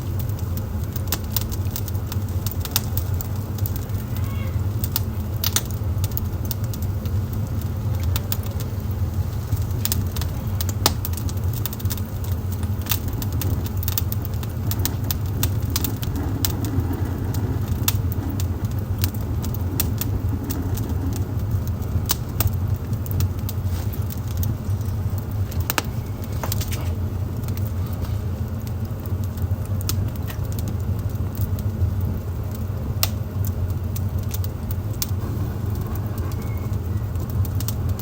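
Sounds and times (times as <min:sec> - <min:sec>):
fire low rumble: 0:00.0 - 0:38.0
wood fire crackling and popping: 0:00.0 - 0:38.0.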